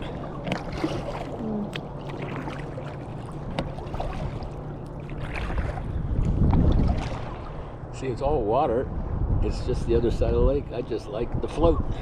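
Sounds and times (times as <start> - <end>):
paddle splashing in water: 0.0 - 7.6
steady low rumble: 0.0 - 12.0.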